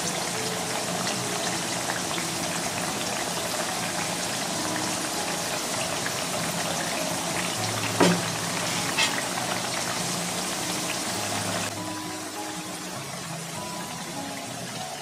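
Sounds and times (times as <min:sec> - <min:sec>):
potato slices sizzling in oil: 0:00.0 - 0:15.0.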